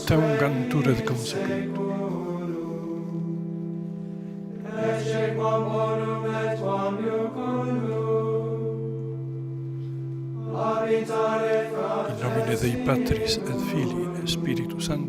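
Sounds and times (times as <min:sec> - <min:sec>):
men singing plainchant: 0:00.0 - 0:03.1, 0:10.5 - 0:15.0.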